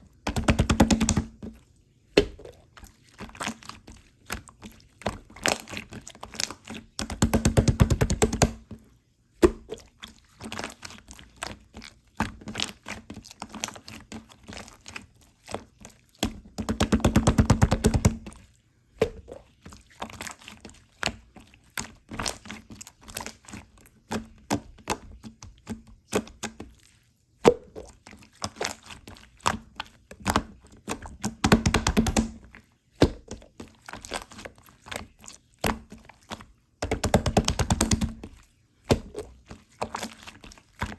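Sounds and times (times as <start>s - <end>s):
slime squished by hand: 0.3s - 8.7s, 19.0s - 40.9s.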